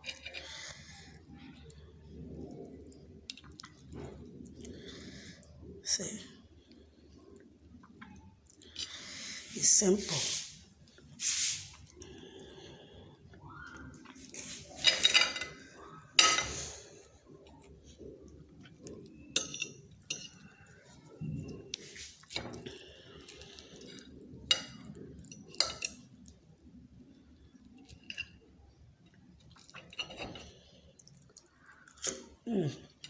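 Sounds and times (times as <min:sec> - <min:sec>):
cutlery clinking on a plate: 0:14.8 - 0:15.6, 0:16.2 - 0:16.6.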